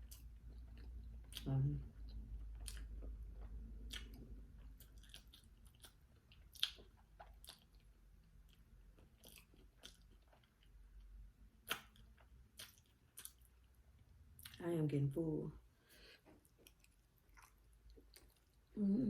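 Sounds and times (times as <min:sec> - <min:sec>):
person chewing food: 0:00.0 - 0:14.6, 0:15.9 - 0:18.8.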